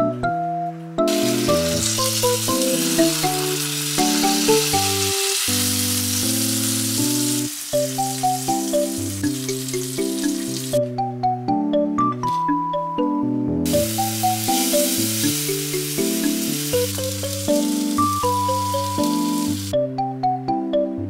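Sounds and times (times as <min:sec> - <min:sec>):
background music: 0:00.0 - 0:21.0
fish sizzling in a frying pan: 0:01.1 - 0:10.8, 0:13.7 - 0:19.7.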